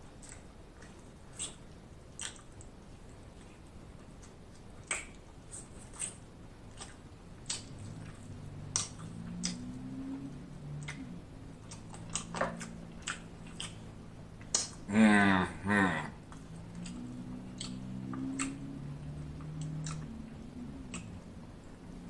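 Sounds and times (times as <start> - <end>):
chewing and mouth smacks: 0.1 - 14.9, 16.2 - 22.0
low wavering hum: 5.3 - 22.0.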